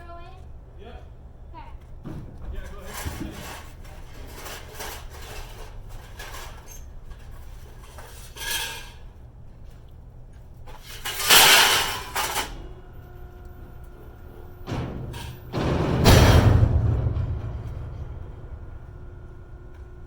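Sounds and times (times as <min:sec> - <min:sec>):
scrap metal clanging: 0:02.0 - 0:09.8, 0:10.7 - 0:20.0
metal crash ringing: 0:14.4 - 0:20.0.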